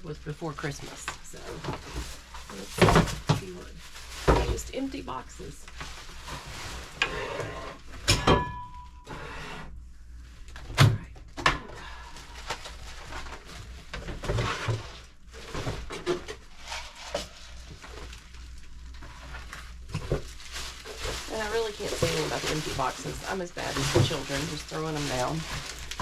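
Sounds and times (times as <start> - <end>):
cardboard boxes rustling: 19.0 - 26.0.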